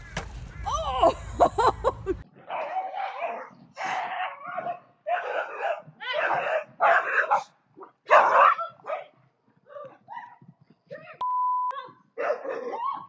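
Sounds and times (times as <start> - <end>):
dog barking: 2.4 - 10.4, 12.2 - 13.0.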